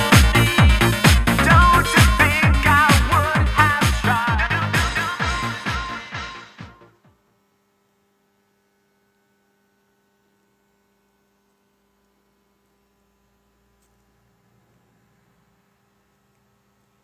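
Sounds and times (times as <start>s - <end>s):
electronic dance music: 0.0s - 7.0s
faint electrical hum: 7.0s - 17.0s.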